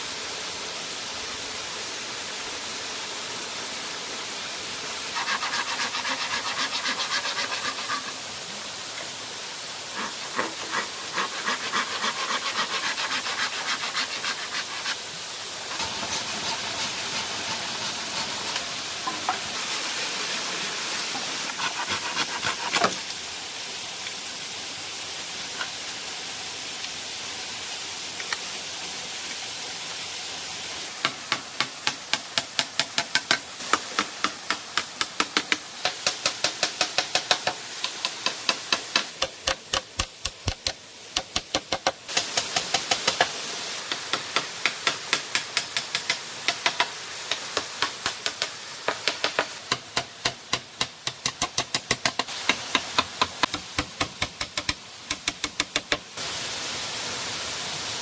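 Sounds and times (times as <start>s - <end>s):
rushing water hiss: 0.0s - 58.0s
scraping bamboo with hand tools: 5.1s - 8.3s, 9.9s - 15.0s, 15.6s - 20.4s, 21.1s - 23.1s.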